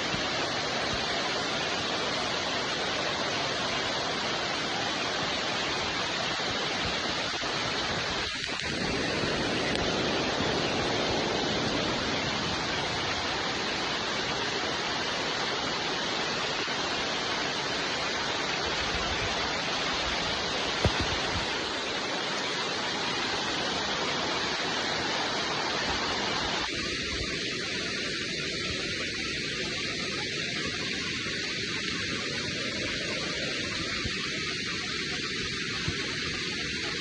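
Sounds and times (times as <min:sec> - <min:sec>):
steady rain: 0:00.0 - 0:37.0.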